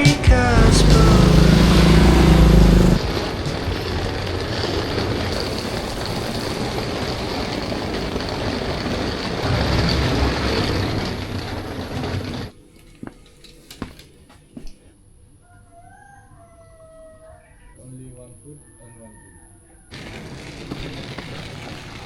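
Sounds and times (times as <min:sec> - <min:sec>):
road traffic noise: 0:00.0 - 0:05.8, 0:09.4 - 0:12.5.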